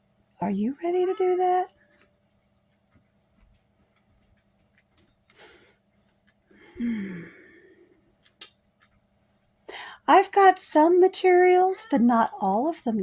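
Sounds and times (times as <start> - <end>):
faint clicks: 1.8 - 6.5
woman breathing in: 6.5 - 8.0, 9.7 - 10.0
woman sighing: 6.6 - 7.8.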